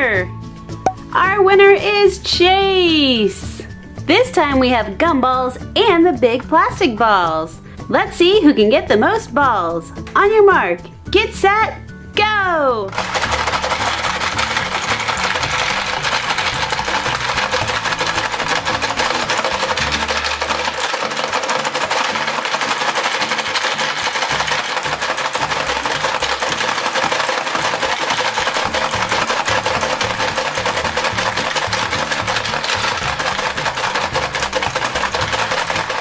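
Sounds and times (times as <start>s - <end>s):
background music: 0.0s - 36.0s
plastic balls rattling: 12.9s - 36.0s
plastic toy game clattering: 12.9s - 36.0s.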